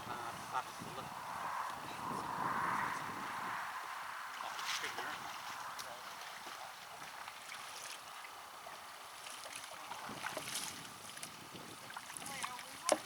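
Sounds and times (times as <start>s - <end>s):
water lapping against kayak: 4.2s - 13.0s.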